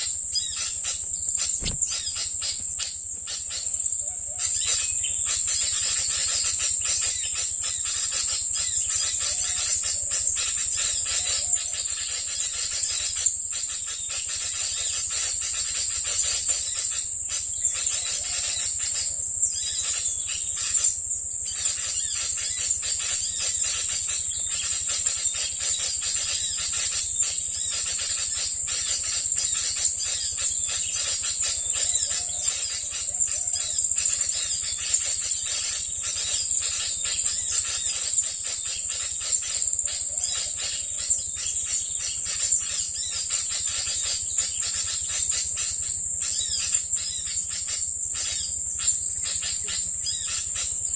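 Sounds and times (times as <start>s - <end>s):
small birds chirping: 0.0s - 50.9s
high-pitched buzz: 1.5s - 2.2s.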